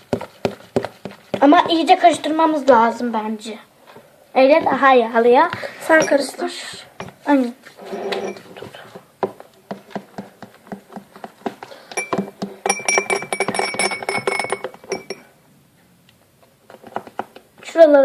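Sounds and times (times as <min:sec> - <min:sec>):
spoon stirring slime in bowl: 0:00.0 - 0:02.4, 0:04.4 - 0:15.3
thin ringing from bowl: 0:05.9 - 0:06.4, 0:12.0 - 0:15.3.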